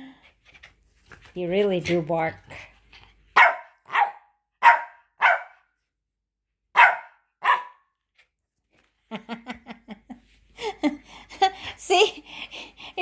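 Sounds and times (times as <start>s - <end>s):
dog barking: 3.4s - 5.6s, 6.7s - 7.9s.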